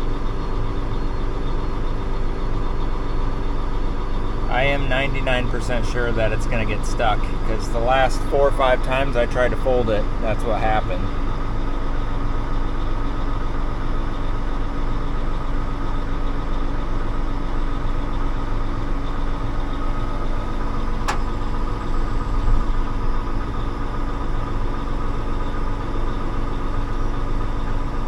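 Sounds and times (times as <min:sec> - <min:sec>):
tractor engine running: 0:00.0 - 0:28.0
sharp click: 0:21.0 - 0:21.4.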